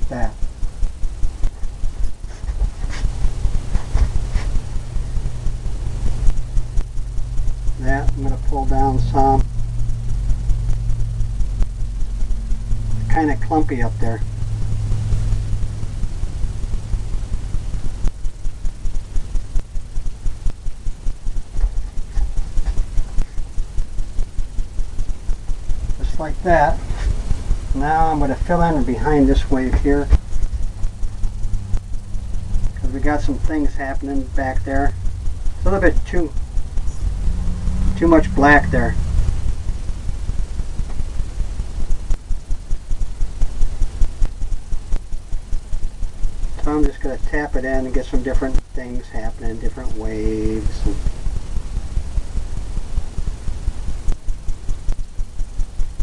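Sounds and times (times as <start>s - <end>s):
low rumble: 0.0s - 56.0s
steady low hum: 0.0s - 56.0s
paintbrush strokes on canvas: 2.2s - 4.8s.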